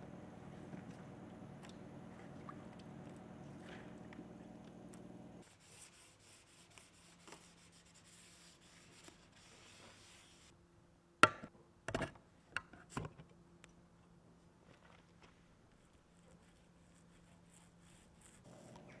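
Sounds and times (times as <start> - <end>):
faint rubbing strokes: 5.4 - 10.5, 15.7 - 19.0.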